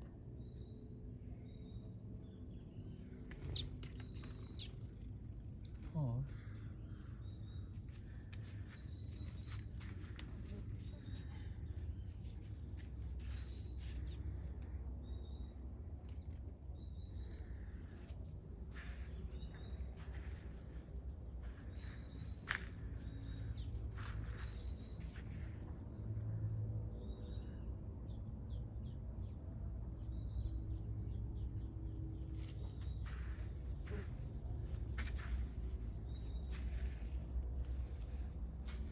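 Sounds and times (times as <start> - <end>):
steady low rumble: 0.0 - 28.2, 28.9 - 38.9
high insect whine: 0.0 - 38.9
birds chirping: 0.4 - 26.0, 31.0 - 38.9.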